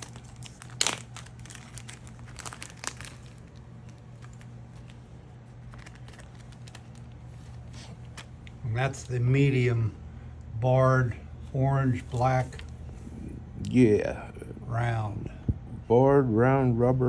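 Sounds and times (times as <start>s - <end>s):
plastic packaging crinkling: 0.0s - 9.1s
steady low hum: 0.0s - 17.0s.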